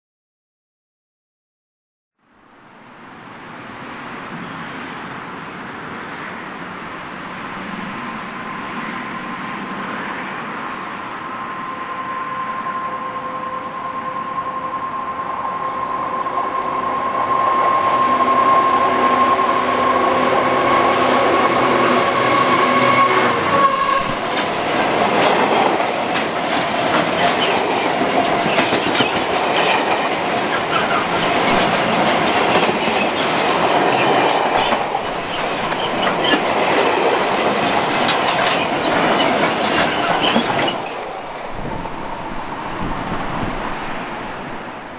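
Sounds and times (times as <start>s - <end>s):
diesel locomotive engine: 3.0s - 44.9s
wagons rumbling and clattering: 24.3s - 41.8s.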